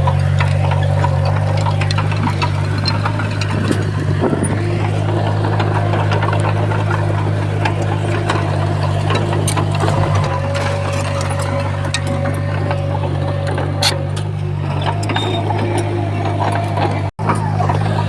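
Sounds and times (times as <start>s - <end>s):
clanks and knocks: 0.0s - 18.0s
diesel engine running under load: 0.0s - 18.0s.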